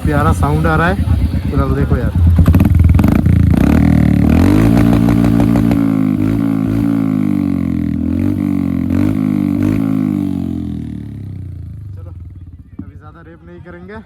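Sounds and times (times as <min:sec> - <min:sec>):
motorcycle engine revving and idling: 0:00.0 - 0:14.0.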